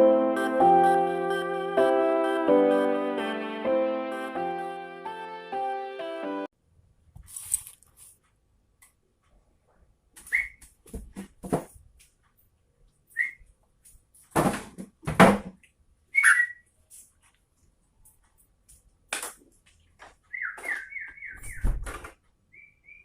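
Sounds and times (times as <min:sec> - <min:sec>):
bird whistled and chattering calls: 0:10.3 - 0:10.6, 0:13.2 - 0:13.4, 0:16.1 - 0:16.6, 0:20.3 - 0:21.7, 0:22.5 - 0:23.0.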